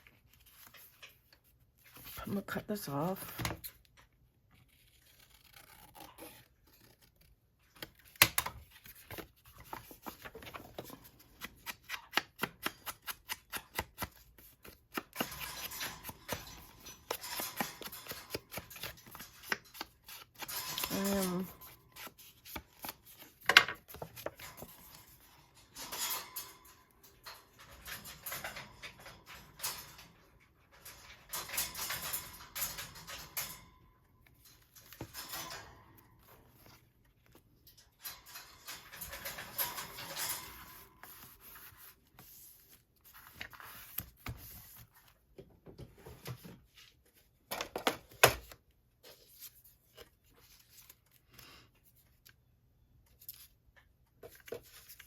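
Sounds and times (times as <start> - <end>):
paper rustling: 0.0 - 2.3, 4.6 - 25.2, 38.9 - 45.2, 54.2 - 55.0.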